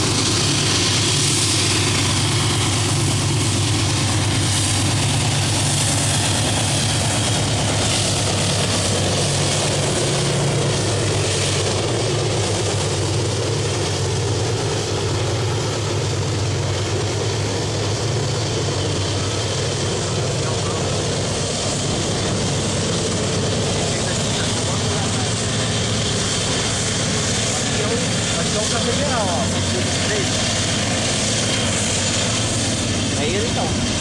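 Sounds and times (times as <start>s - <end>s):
diesel locomotives droning: 0.0s - 34.0s.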